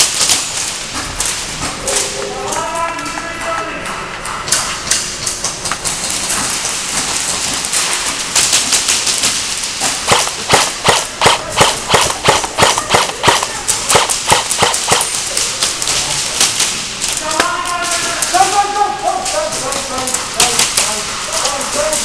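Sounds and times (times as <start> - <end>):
sharp clacks and knocks: 3.0 - 16.0.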